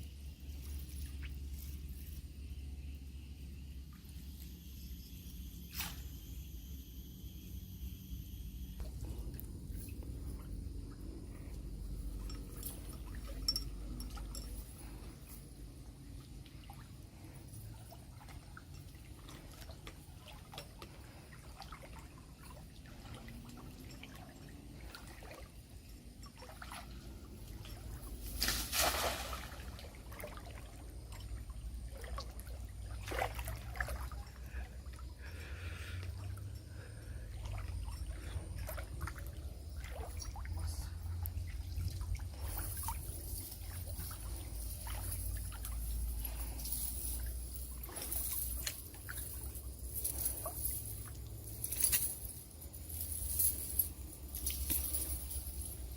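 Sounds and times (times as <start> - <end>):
river water trickling: 0.0 - 6.8, 8.8 - 55.9
loud water splash: 28.4 - 29.8.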